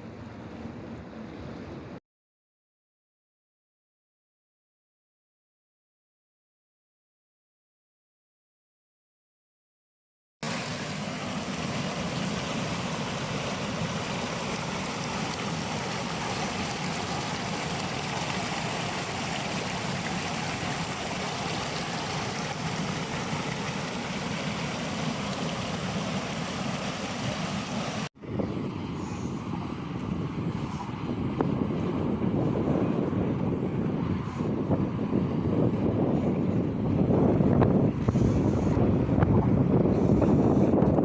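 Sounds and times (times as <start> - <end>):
stream water rushing: 10.4 - 28.1.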